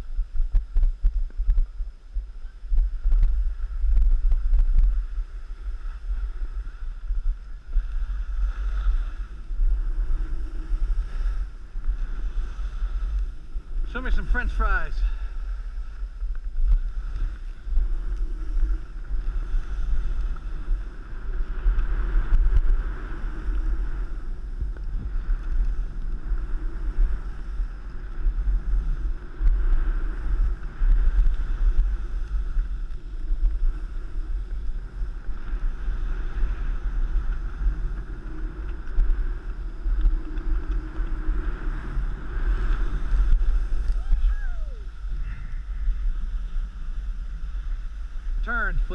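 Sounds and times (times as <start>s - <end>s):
wind buffeting microphone: 0.0s - 48.9s
skis scraping over snow: 0.1s - 48.9s.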